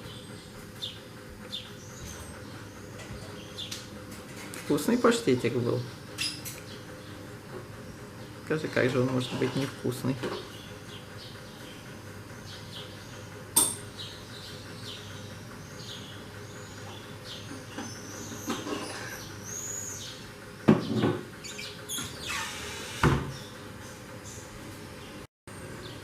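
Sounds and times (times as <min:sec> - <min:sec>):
small birds chirping: 0:00.0 - 0:04.0, 0:04.7 - 0:22.4
sharp household knocks: 0:20.7 - 0:21.2, 0:23.0 - 0:23.4.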